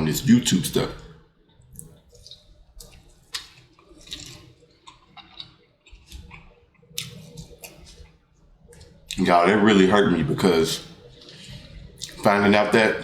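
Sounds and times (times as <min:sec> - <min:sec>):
person chewing: 0:01.5 - 0:09.3, 0:10.9 - 0:12.4.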